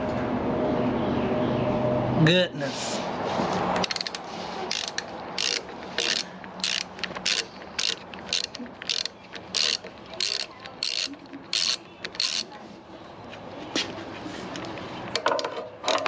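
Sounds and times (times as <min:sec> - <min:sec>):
ratchet wrench clicking: 0:03.8 - 0:12.5.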